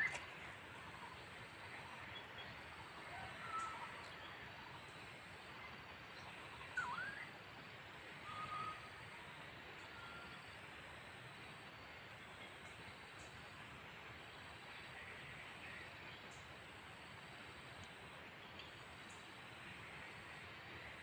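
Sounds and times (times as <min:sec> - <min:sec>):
bird calls: 0:00.0 - 0:00.4
soft outdoor hiss: 0:00.0 - 0:21.0.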